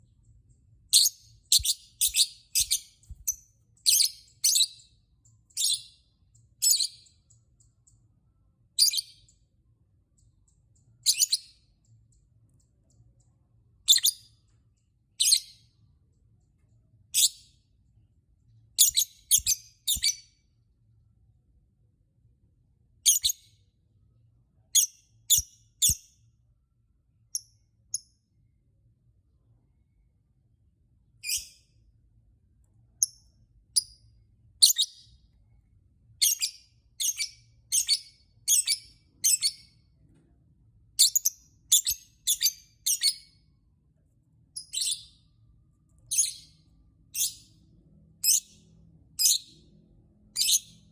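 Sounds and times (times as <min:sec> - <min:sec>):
lovebird chirping: 0:00.9 - 0:07.4, 0:08.8 - 0:09.4, 0:10.9 - 0:11.6, 0:13.9 - 0:14.4, 0:15.2 - 0:15.6, 0:18.8 - 0:20.3, 0:23.1 - 0:23.5, 0:24.8 - 0:26.1, 0:31.2 - 0:31.6, 0:34.6 - 0:35.2, 0:36.2 - 0:39.8, 0:41.0 - 0:43.5, 0:44.6 - 0:45.3, 0:46.0 - 0:47.6, 0:48.2 - 0:49.6, 0:50.4 - 0:50.9.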